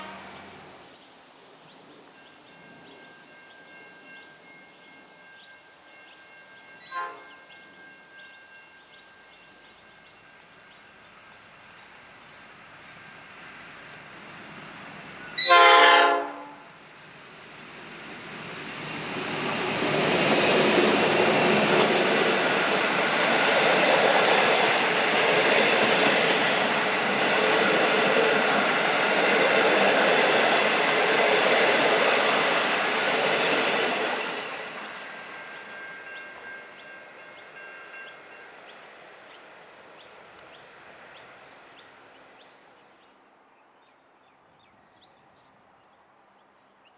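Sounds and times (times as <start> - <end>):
train horn blast: 0.0 - 0.6, 6.8 - 7.5, 15.4 - 16.8
train rumble and clatter: 2.0 - 42.5.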